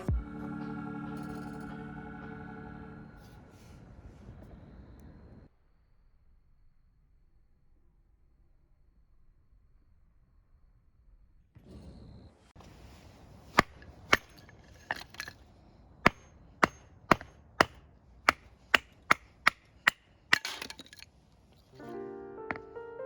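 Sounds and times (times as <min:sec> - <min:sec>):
background music: 0:00.0 - 0:03.5, 0:21.8 - 0:23.0
chopping blows on wood: 0:16.1 - 0:20.0.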